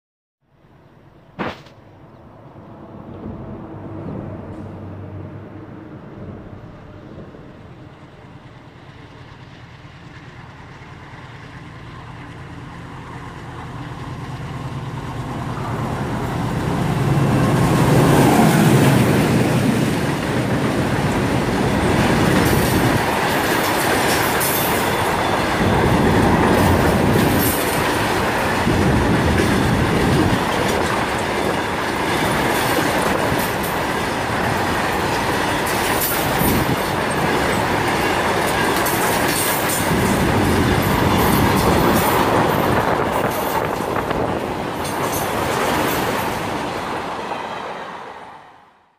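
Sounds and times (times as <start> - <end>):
diesel locomotive engine passing: 1.9 - 48.9
wagon wheels clacking on rails: 18.8 - 46.8.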